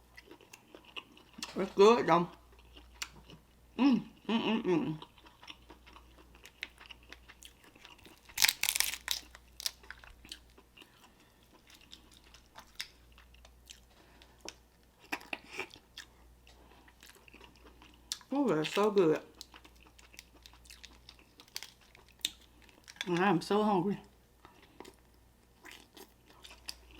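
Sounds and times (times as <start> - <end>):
chewing and biting: 5.0 - 18.3, 19.4 - 23.1
crab shell crunching: 5.2 - 13.1, 19.4 - 23.1.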